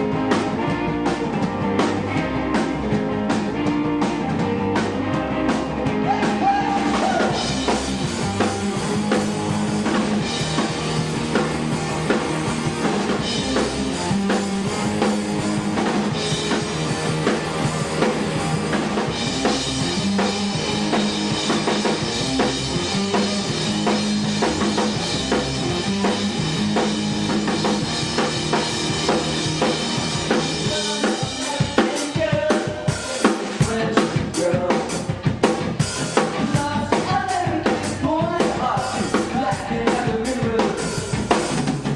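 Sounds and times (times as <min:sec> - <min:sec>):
drum kit beat: 0:00.0 - 0:41.9
rock band playing live: 0:00.0 - 0:41.9.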